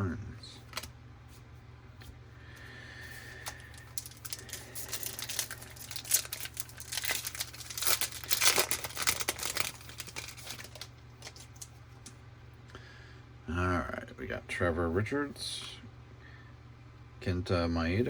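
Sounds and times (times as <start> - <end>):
foil wrapper crinkling and tearing: 0.6 - 0.9, 3.2 - 12.1.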